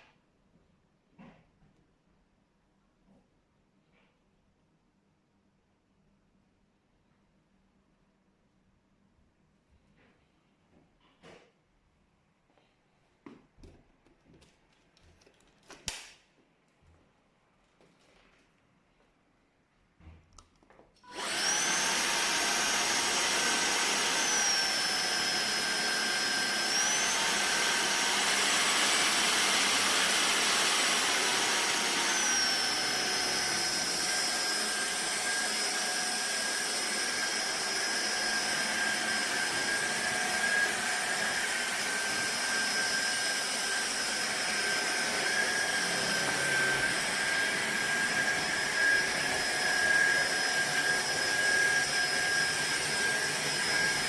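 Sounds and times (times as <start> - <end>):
stick vacuum cleaner running: 21.0 - 54.0.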